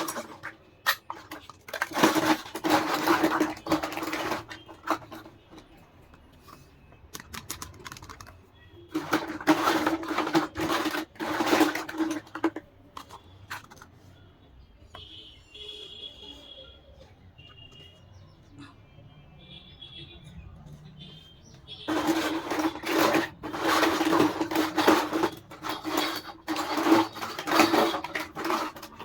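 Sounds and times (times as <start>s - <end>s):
plastic packaging rustling and scraping: 0.0s - 14.3s, 20.8s - 29.0s.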